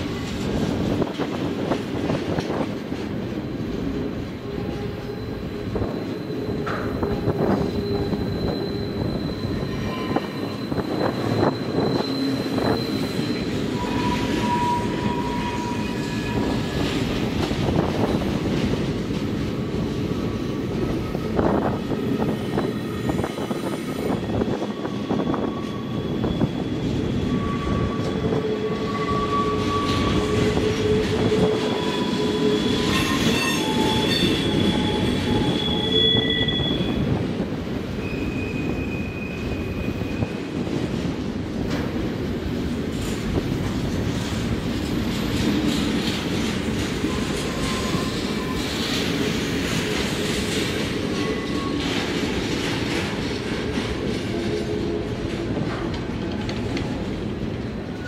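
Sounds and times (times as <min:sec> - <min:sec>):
freight train wheels rumbling: 0:00.0 - 0:58.0
wheel flange squeal: 0:04.4 - 0:16.9, 0:22.2 - 0:37.0, 0:47.0 - 0:49.0.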